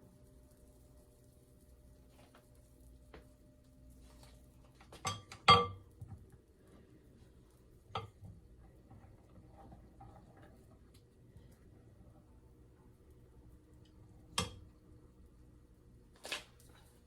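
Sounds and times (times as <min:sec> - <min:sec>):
dishes clinking: 0:05.0 - 0:05.9.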